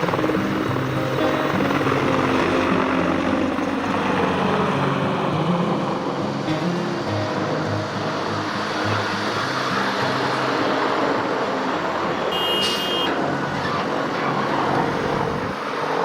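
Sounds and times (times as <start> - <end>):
helicopter turbine and rotor noise: 0.0 - 16.0
short electronic beep: 12.3 - 13.1.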